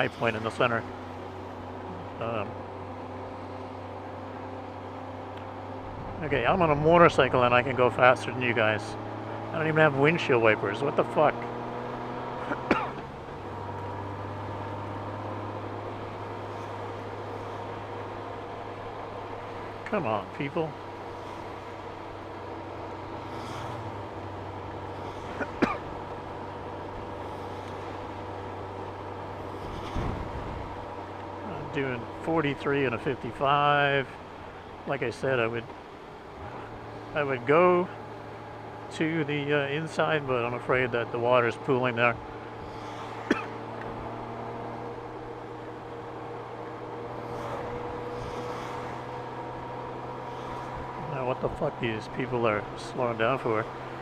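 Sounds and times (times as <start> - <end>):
motorcycle engine hum: 0.0 - 54.0
wet road noise: 0.0 - 54.0
wind: 0.0 - 54.0.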